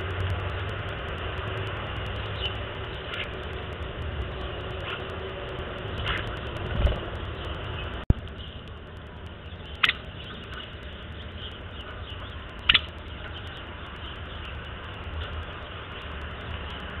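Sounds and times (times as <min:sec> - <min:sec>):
low outdoor rumble: 0:00.0 - 0:17.0
sharp bird calls: 0:02.0 - 0:17.0
sharp click: 0:12.6 - 0:13.1.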